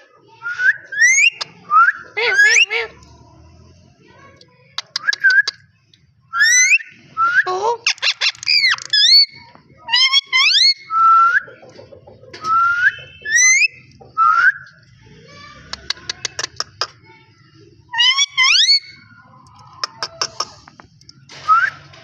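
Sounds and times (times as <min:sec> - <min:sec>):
clicking chirps: 0:04.4 - 0:06.0
parrot whistling: 0:06.4 - 0:11.4, 0:12.5 - 0:14.6, 0:18.0 - 0:19.0.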